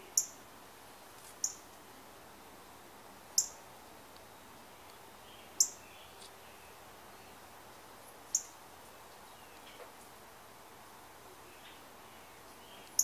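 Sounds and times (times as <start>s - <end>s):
small bird chip calls: 0.0s - 0.4s, 1.4s - 1.7s, 3.4s - 3.6s, 4.8s - 7.4s, 8.3s - 8.6s, 11.4s - 13.0s
faint background noise: 0.0s - 13.0s.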